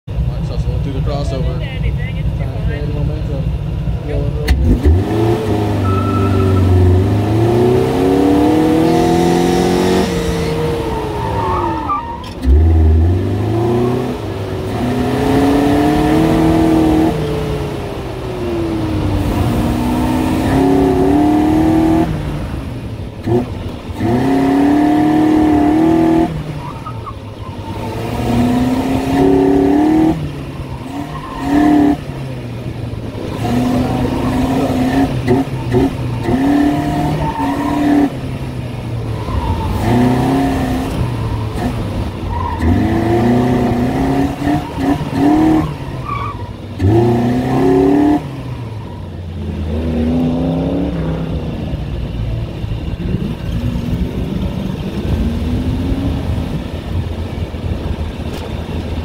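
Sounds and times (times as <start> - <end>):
car engine revving hard: 4.4 - 56.8
tyre squeals: 5.8 - 7.0, 10.5 - 12.6, 33.3 - 38.1.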